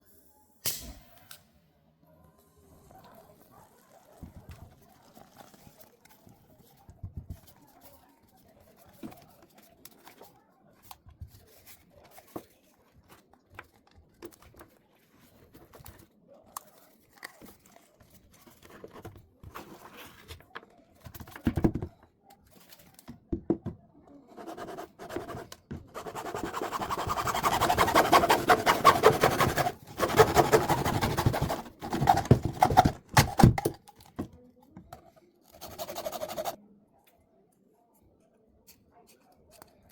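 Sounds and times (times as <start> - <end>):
small taps and handling noises: 4.2 - 24.2, 30.8 - 35.6
loud rasping scrape: 24.4 - 33.4.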